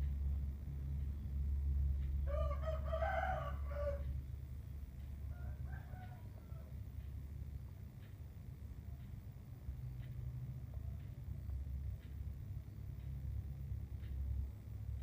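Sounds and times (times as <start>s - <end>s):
steady low hum: 0.0s - 15.0s
rooster crowing: 2.2s - 4.1s, 5.2s - 6.8s.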